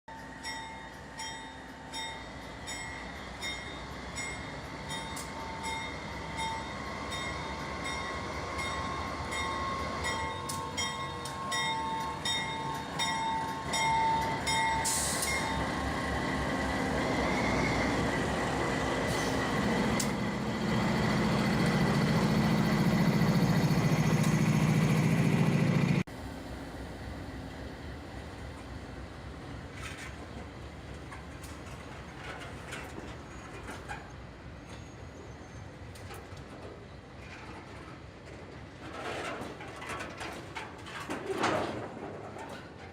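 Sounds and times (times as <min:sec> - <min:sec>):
locomotive diesel engine drone: 0:00.1 - 0:29.4
rail and wagon noise: 0:00.1 - 0:42.9.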